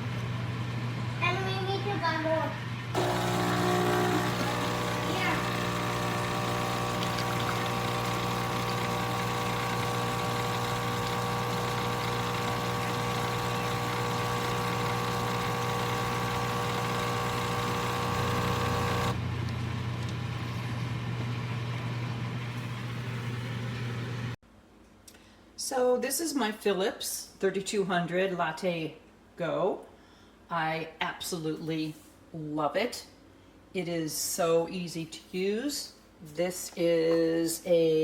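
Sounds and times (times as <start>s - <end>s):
machine humming: 3.0s - 19.2s.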